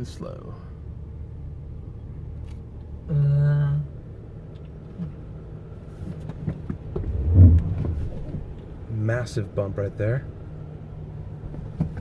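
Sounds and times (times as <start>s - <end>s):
car engine low rumble: 0.0s - 12.0s
low thud: 7.0s - 8.7s.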